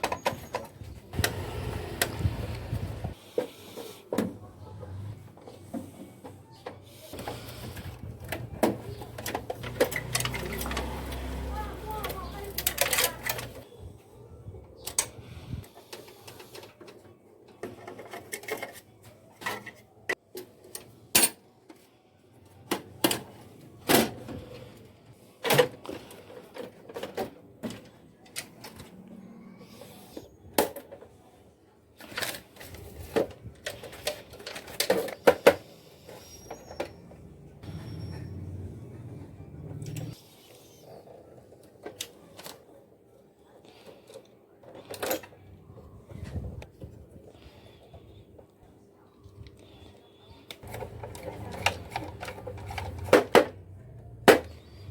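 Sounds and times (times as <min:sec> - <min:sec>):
clicks and knocks of parts: 0:06.6 - 0:13.7, 0:14.8 - 0:21.8, 0:32.0 - 0:37.1, 0:50.5 - 0:54.6.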